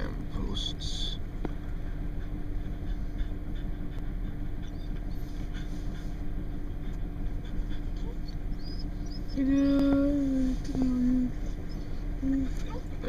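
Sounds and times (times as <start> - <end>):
faint constant hum: 0.0 - 13.0.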